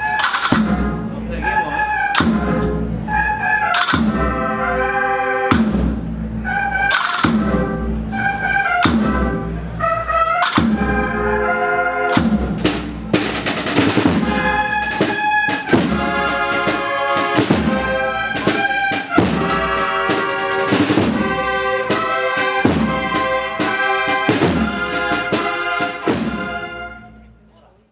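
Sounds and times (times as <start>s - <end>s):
drum strokes: 0.0s - 11.5s, 12.1s - 26.7s
bugles playing march phrases: 0.0s - 27.2s.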